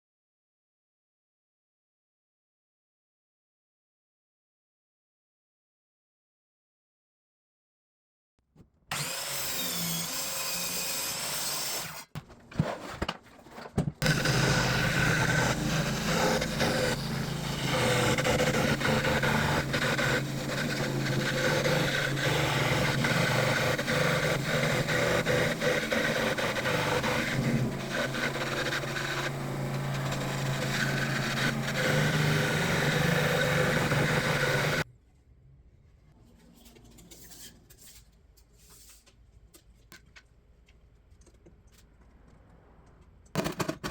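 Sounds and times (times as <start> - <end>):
power tool motor humming: 8.9 - 12.1, 14.0 - 34.8.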